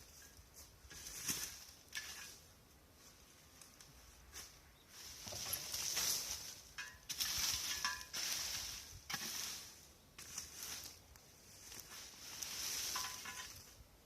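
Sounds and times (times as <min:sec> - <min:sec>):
dry leaves and branches rustling: 0:00.0 - 0:14.0.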